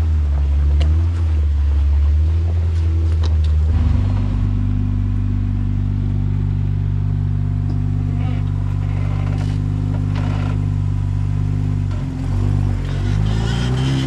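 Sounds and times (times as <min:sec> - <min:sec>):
jeep engine revving: 0:03.6 - 0:14.0
sharp knocks: 0:03.7 - 0:06.6.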